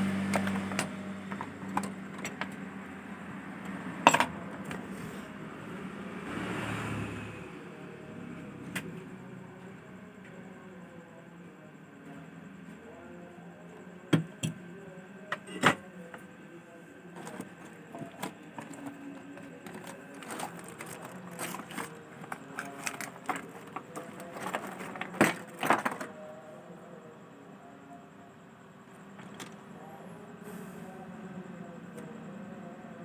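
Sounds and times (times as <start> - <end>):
faint steady hum: 7.0 - 33.0.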